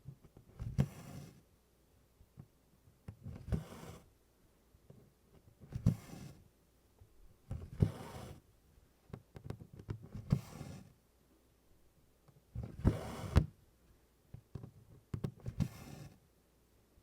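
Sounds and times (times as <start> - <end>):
thread rasping through cloth: 7.5 - 8.4.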